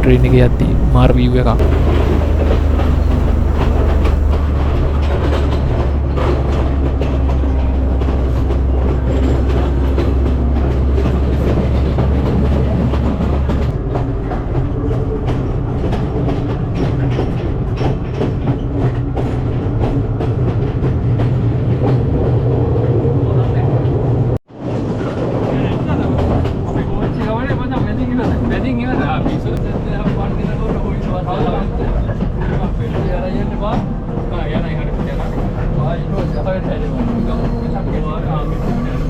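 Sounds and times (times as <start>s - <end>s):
strong low hum: 0.0s - 6.1s
train rumbling on track: 0.0s - 39.0s.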